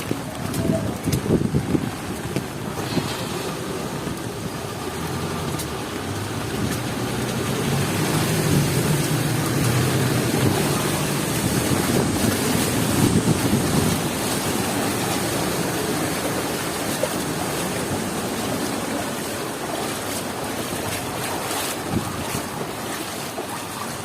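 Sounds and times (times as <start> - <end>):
heavy rain: 0.0 - 24.0
road traffic: 0.0 - 24.0
vehicle engine: 2.7 - 18.4.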